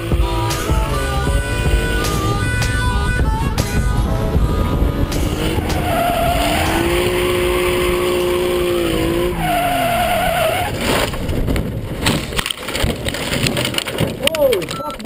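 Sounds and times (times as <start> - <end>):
car engine revving: 0.0 - 13.3
tyres squealing: 4.4 - 11.1.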